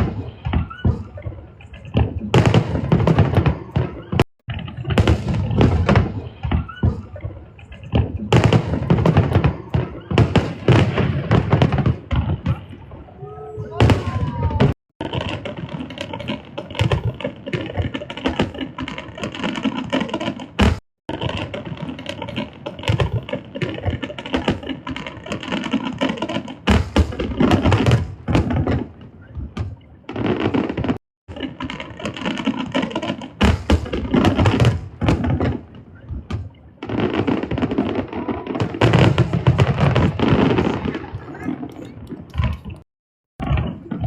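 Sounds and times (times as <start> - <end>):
fireworks booming and crackling: 0.0 - 44.0.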